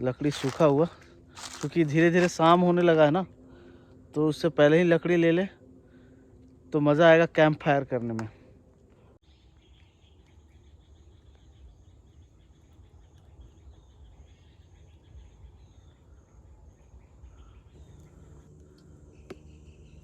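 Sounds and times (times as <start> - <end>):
bird calls: 0.0 - 2.3, 9.3 - 20.0
scattered insect calls: 0.0 - 6.6, 9.3 - 20.0
insect chirping steady pulse: 0.0 - 20.0.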